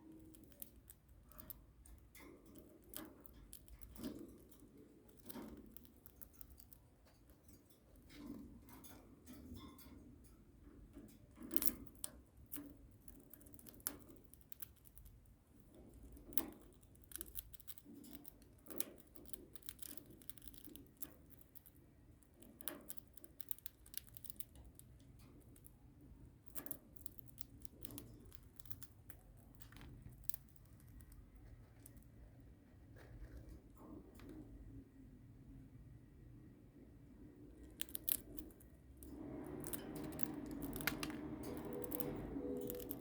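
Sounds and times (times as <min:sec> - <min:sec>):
birds crunching cornflakes: 0:39.5 - 0:43.0.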